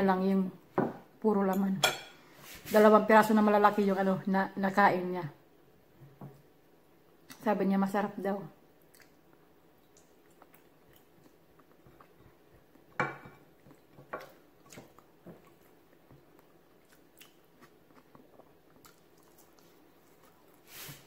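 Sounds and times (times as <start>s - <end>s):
wet chewing: 8.8s - 20.7s.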